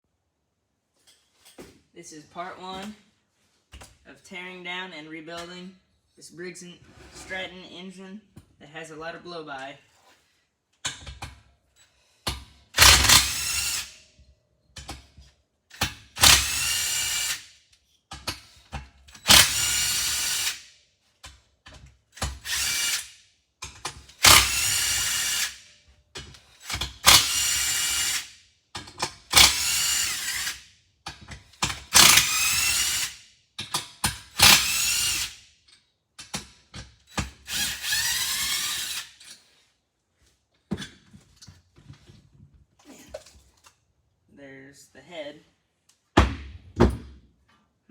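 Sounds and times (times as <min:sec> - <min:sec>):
power drill whining in bursts: 0:12.8 - 0:14.0, 0:16.0 - 0:17.5, 0:19.2 - 0:20.6, 0:22.2 - 0:23.1, 0:24.0 - 0:25.6, 0:26.4 - 0:28.3, 0:29.2 - 0:30.6, 0:31.6 - 0:33.2, 0:34.2 - 0:35.4, 0:37.1 - 0:39.4.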